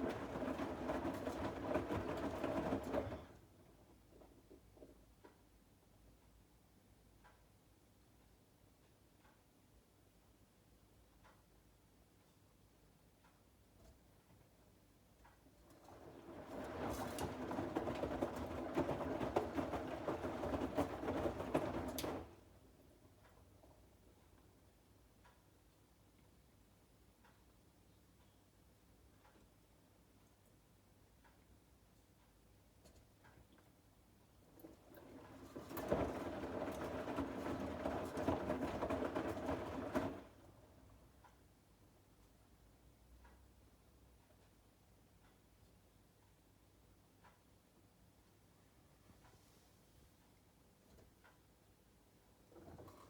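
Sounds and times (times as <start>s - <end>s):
washing machine humming: 0.0s - 4.2s, 15.5s - 24.4s, 34.3s - 41.2s
wet laundry tumbling with knocks: 0.0s - 4.9s, 15.6s - 22.8s, 34.5s - 40.8s
small clatters: 0.0s - 5.5s, 15.2s - 24.4s, 32.8s - 41.4s, 52.3s - 53.0s.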